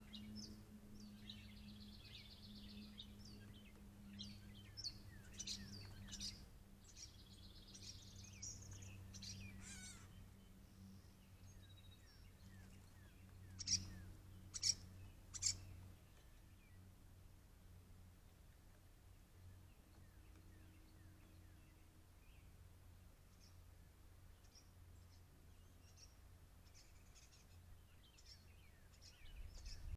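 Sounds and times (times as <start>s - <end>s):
faint low hum: 0.0s - 29.9s
catbirds chattering trills: 4.1s - 10.3s, 11.5s - 15.8s
sharp loud bird calls: 7.7s - 10.2s, 13.5s - 15.7s.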